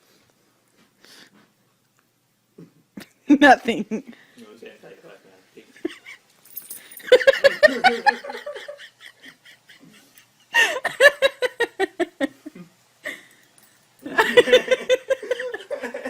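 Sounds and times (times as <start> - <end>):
person laughing: 7.0 - 13.3, 14.0 - 16.0.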